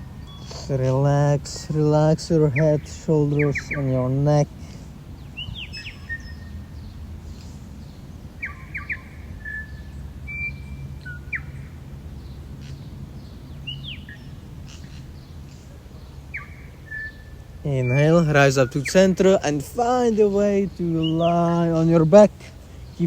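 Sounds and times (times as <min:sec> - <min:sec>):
birds chirping: 0:00.0 - 0:23.0
low background hum: 0:00.0 - 0:23.0.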